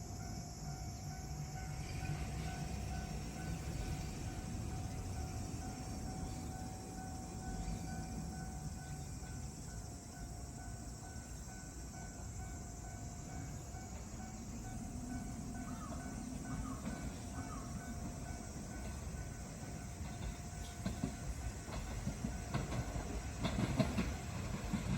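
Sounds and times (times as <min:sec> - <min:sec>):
train rumbling: 0:00.0 - 0:24.9.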